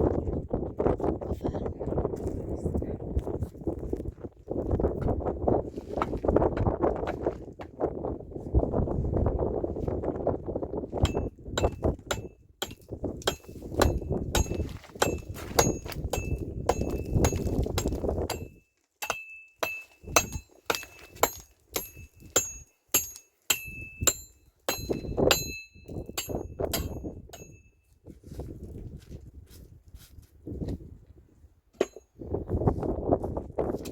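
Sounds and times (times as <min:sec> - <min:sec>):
sharp metallic clinks: 0:18.3 - 0:27.8.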